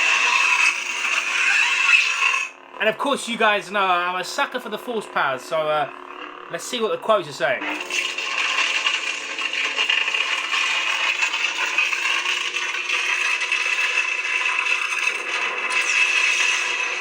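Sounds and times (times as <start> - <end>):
lightsaber blade hum: 0.0 - 2.6
crackling rasping sound effect: 0.0 - 6.7.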